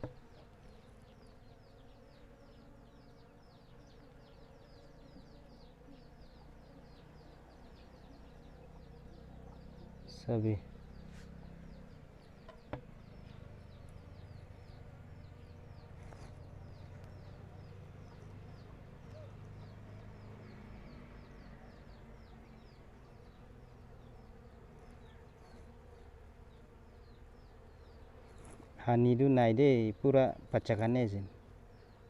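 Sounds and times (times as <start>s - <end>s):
bees buzzing: 0.0s - 32.0s.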